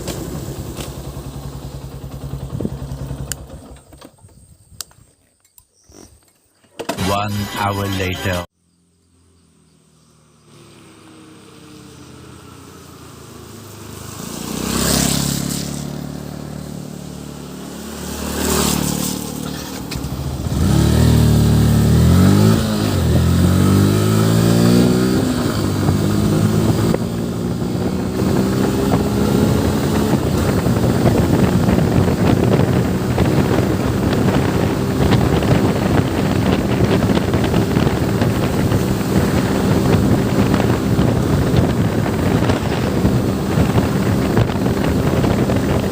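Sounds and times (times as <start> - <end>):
motorcycle engine accelerating: 0.0 - 4.1, 8.7 - 45.9
wind noise on microphone: 20.0 - 45.9.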